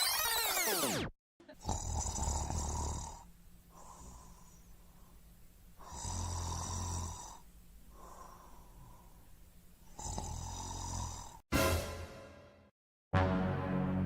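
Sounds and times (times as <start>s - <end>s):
loud snoring: 1.5s - 4.3s, 5.8s - 7.5s, 9.9s - 11.4s
faint breath out: 7.9s - 9.3s.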